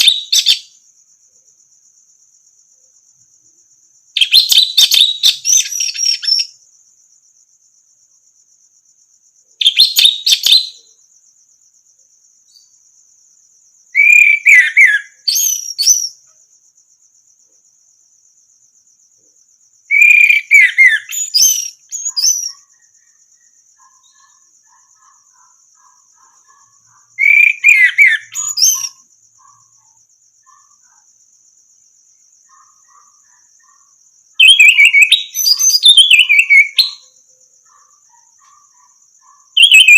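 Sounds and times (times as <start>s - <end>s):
thrush singing whistled phrases: 4.2s - 6.6s, 14.0s - 16.2s, 19.9s - 22.6s, 27.2s - 29.0s, 34.4s - 37.0s, 39.6s - 39.9s.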